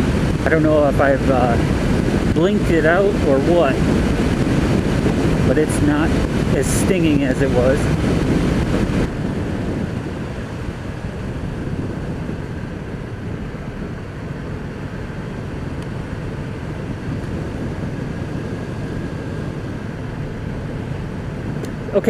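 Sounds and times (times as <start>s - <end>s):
motorcycle engine drone: 0.0s - 22.0s
road noise: 0.0s - 22.0s
wind rush: 0.0s - 22.0s.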